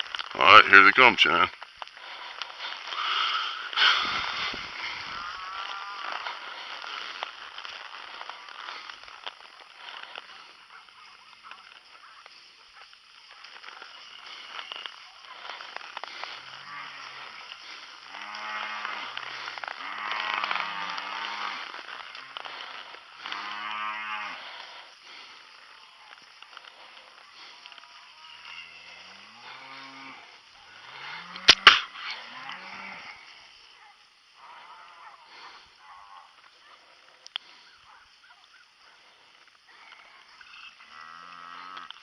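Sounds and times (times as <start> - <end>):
steady hiss: 0.0 - 42.0
cattle mooing: 2.0 - 8.7, 16.3 - 24.8, 28.0 - 33.3, 40.8 - 42.0.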